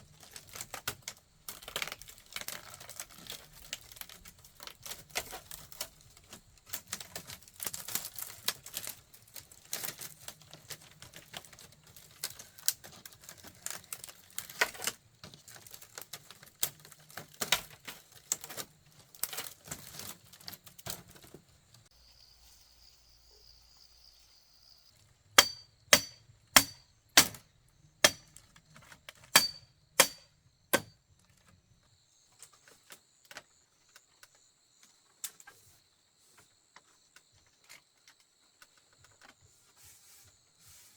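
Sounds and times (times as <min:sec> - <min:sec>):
tapping and clattering on bamboo: 0:00.0 - 0:21.8, 0:25.0 - 0:35.6
sharp ringing strikes: 0:25.4 - 0:26.8, 0:29.4 - 0:30.9.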